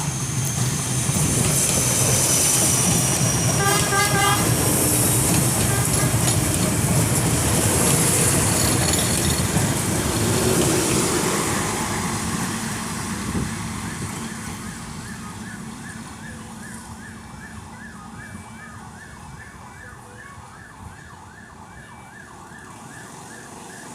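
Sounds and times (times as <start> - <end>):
light-rail train running: 0.0 - 21.8
siren rising and falling: 13.8 - 23.9.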